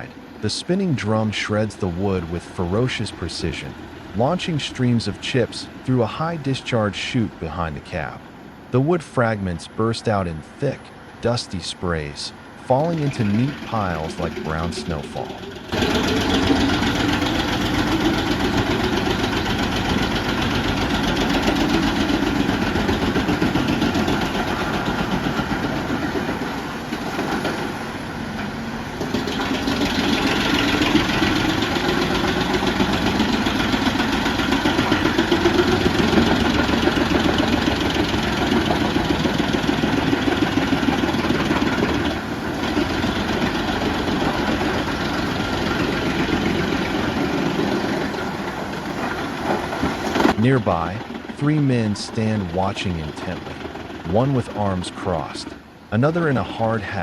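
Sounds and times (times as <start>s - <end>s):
wood chipper running: 12.4s - 51.4s, 53.0s - 54.2s.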